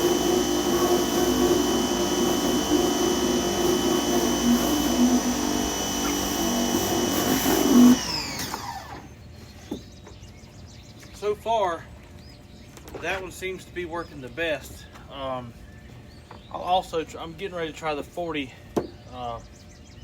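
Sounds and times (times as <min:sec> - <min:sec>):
pressure washer running and spraying: 0:00.0 - 0:09.1
motor winding down: 0:00.0 - 0:09.2.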